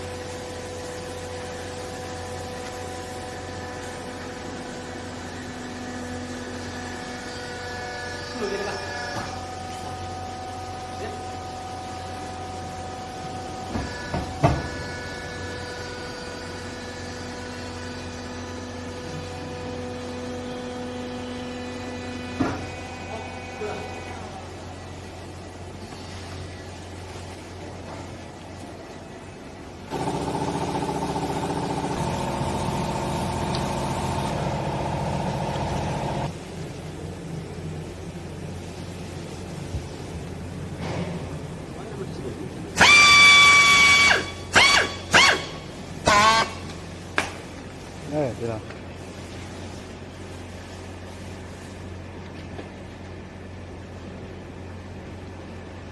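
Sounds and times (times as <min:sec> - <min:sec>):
hydraulic motor and pump humming: 0:00.0 - 0:55.9.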